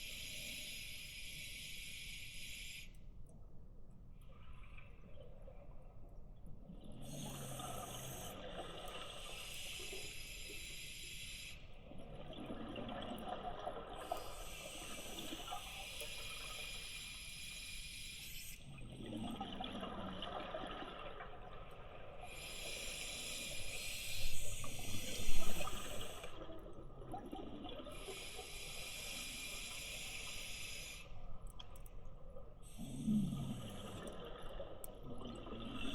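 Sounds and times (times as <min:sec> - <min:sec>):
diver breathing through regulator: 0:22.3 - 0:26.4.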